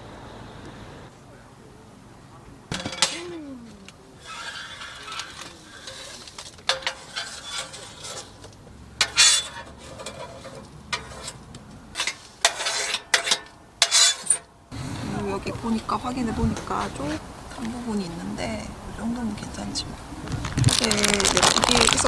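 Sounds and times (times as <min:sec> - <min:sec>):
cookware clattering and scraping: 0:02.7 - 0:17.7.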